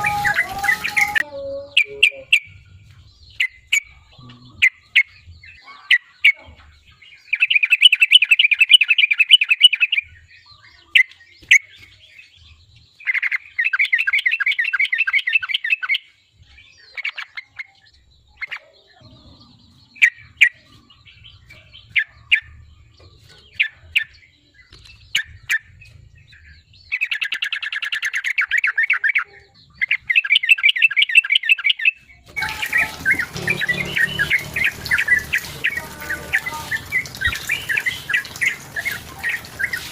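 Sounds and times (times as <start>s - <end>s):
busy background noise: 0.0s - 3.0s, 32.2s - 39.9s
bird singing trilled phrases: 0.0s - 39.9s.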